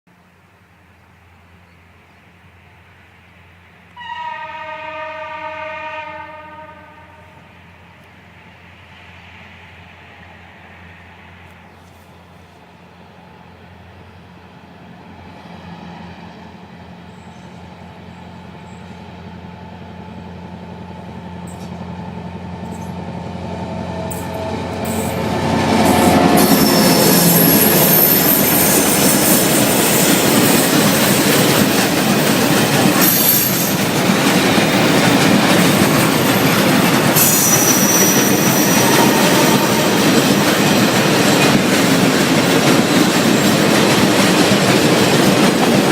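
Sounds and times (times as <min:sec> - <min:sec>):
diesel locomotive engine drone: 0:00.2 - 0:45.9
train wheels clattering over rails: 0:24.0 - 0:45.9
high-pitched wheel squeal: 0:25.8 - 0:30.1, 0:36.5 - 0:40.9.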